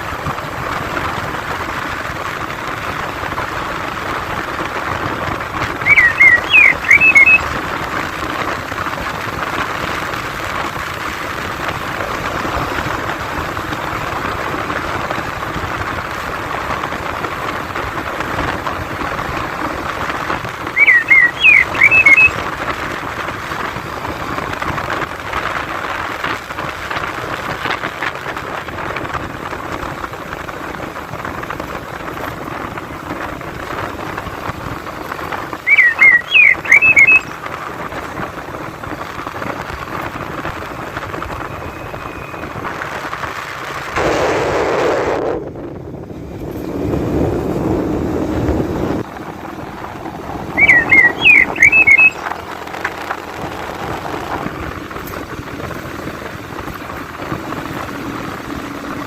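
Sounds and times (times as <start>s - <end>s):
steady rushing noise: 0.0s - 59.0s
bird whistling phrase: 5.8s - 7.4s, 20.8s - 22.4s, 35.7s - 37.3s, 50.4s - 52.4s.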